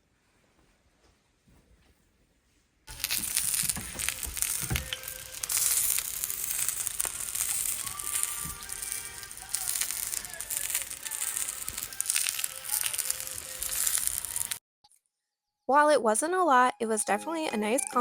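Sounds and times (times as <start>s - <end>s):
meat frying with crackling pops: 2.9s - 14.6s.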